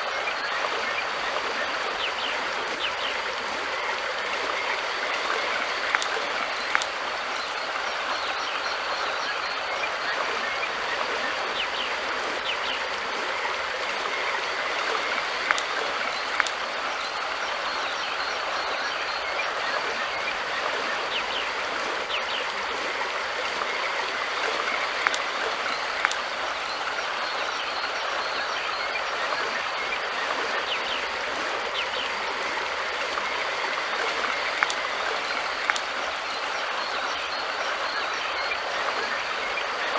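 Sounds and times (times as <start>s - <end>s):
river water rushing: 0.0s - 39.9s
sharp clicks: 5.8s - 7.0s, 15.4s - 16.6s, 24.6s - 26.2s, 34.1s - 35.9s.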